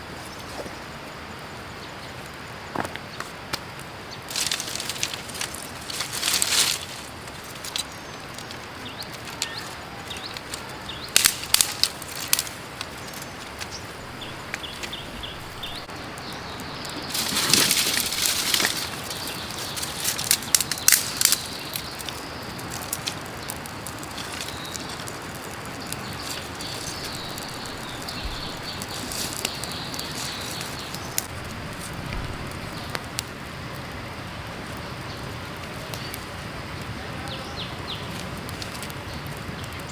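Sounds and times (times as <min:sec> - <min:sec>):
creek water running: 0:00.0 - 0:39.9
brief rustling: 0:17.1 - 0:21.5.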